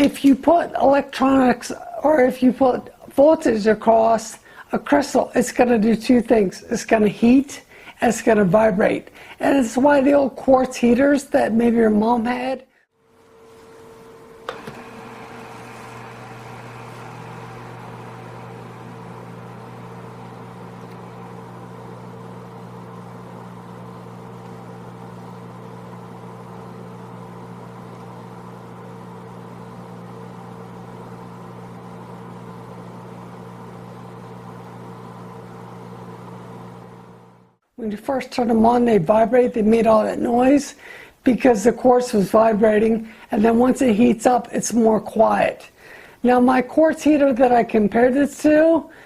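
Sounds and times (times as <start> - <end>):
space heater humming: 0.0 - 49.0.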